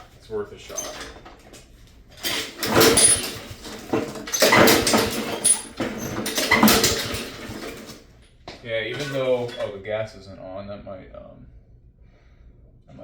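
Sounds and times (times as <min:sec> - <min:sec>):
lawnmower recoil starter cranking: 0:02.2 - 0:08.0.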